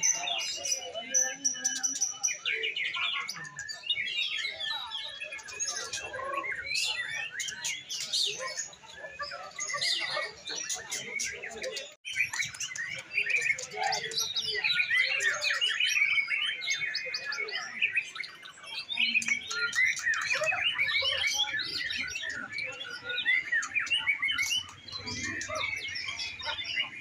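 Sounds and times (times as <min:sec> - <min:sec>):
songbirds chirping and trilling: 0:00.0 - 0:27.0.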